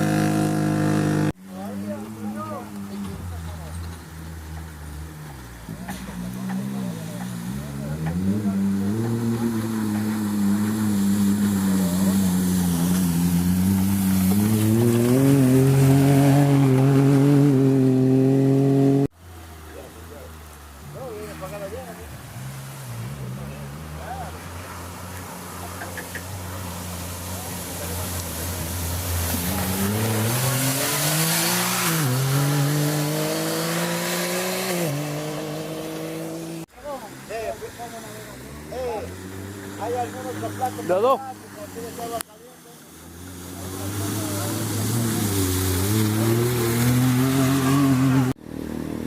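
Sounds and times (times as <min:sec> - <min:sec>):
racing engine at steady revs: 0:04.6 - 0:19.2, 0:27.4 - 0:36.7, 0:43.2 - 0:49.0
racing engine accelerating through gears: 0:29.3 - 0:36.6.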